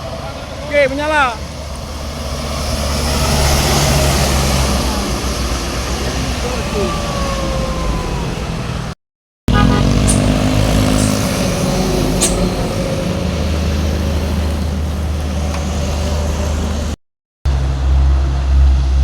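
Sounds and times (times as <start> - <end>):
heavy truck engine passing: 0.0 - 19.0
sharp hiss: 10.1 - 11.6.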